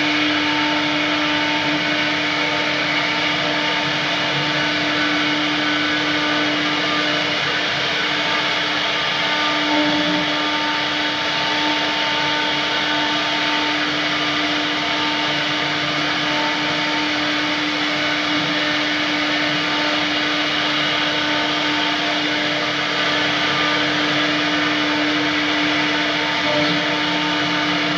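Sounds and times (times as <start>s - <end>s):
wood router whining: 0.0s - 27.9s.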